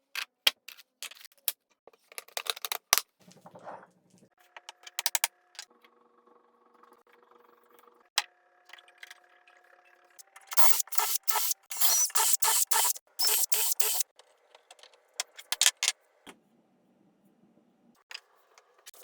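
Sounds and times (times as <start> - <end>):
back-and-forth scraping strokes: 10.6 - 14.0.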